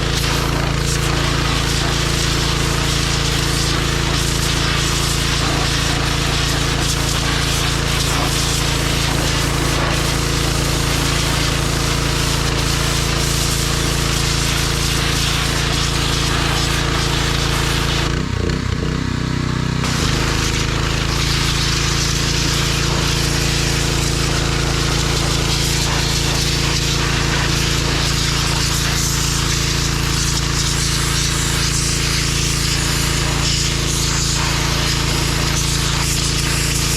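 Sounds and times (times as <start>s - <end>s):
tractor diesel engine running: 16.8s - 28.3s.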